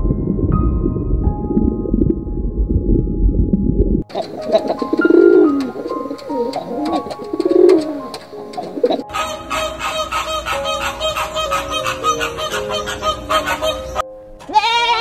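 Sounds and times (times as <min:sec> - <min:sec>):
background music: 0:00.0 - 0:15.0
pigeon cooing: 0:04.1 - 0:14.1.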